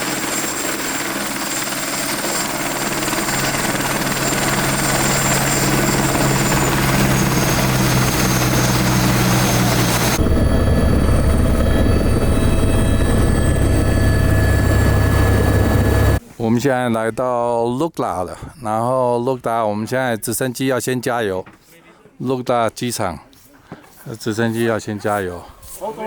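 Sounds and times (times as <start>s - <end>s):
helicopter rotor drone: 0.0s - 16.2s
turbine whine: 0.0s - 16.2s
deep heavy rumble: 5.9s - 16.2s.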